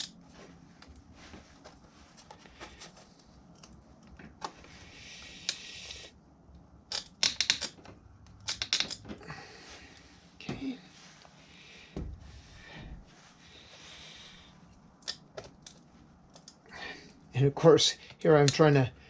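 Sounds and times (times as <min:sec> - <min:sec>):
sharp clicks and light knocks: 0:06.9 - 0:09.2.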